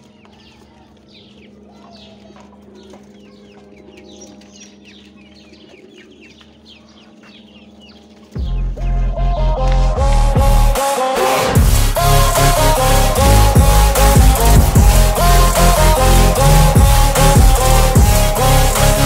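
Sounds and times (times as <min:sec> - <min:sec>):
chicken clucking: 0:00.0 - 0:08.0
chicks peeping: 0:00.0 - 0:09.7
steady low hum: 0:00.0 - 0:19.0.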